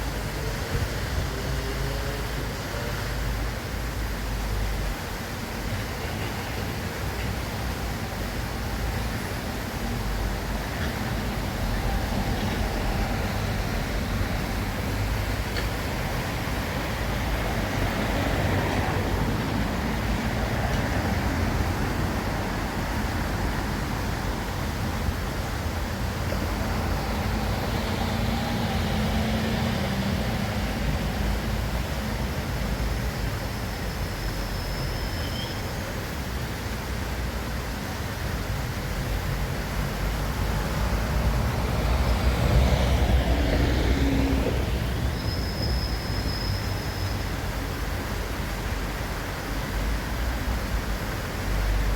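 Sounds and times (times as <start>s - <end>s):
passing cars rumble: 7.0s - 33.6s, 38.8s - 51.9s.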